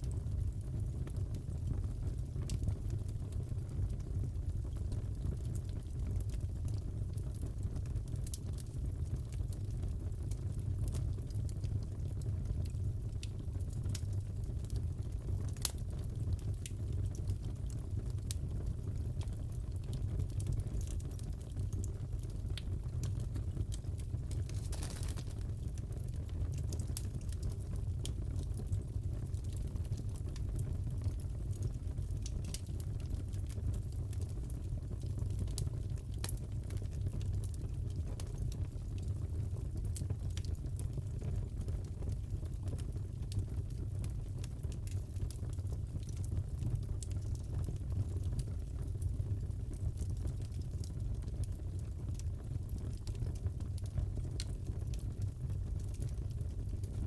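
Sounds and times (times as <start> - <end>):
fireplace fire crackling: 0.0 - 57.0
burning logs rumbling: 18.1 - 35.6.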